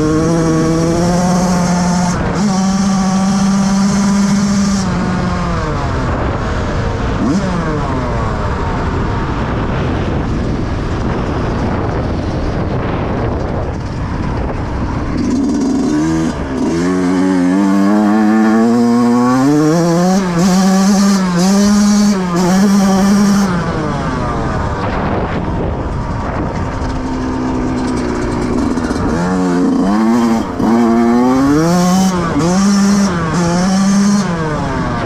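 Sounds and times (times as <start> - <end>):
motocross engine revving: 0.0 - 6.4, 7.1 - 8.4, 15.0 - 35.0.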